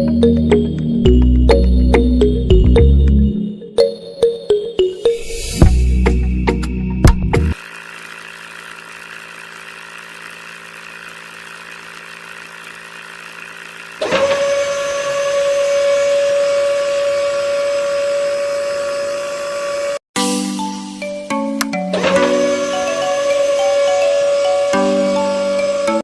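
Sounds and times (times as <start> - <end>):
motor high-pitched whine: 7.5 - 20.0, 22.0 - 26.0
small electric motor humming: 7.5 - 20.0, 22.0 - 26.0.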